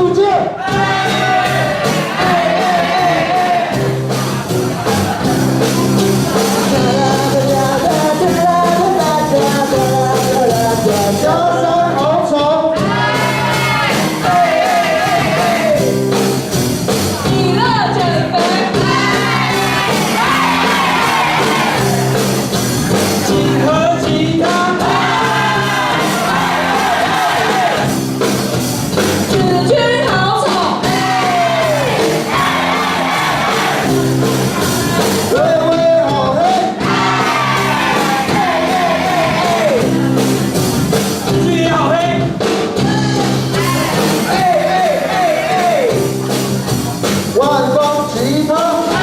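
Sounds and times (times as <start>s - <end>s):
song with sung voices: 0.0s - 49.0s
people shouting: 0.6s - 3.8s, 13.0s - 15.8s, 18.8s - 22.2s, 24.8s - 27.9s, 30.8s - 34.0s, 36.8s - 39.9s, 43.6s - 46.0s.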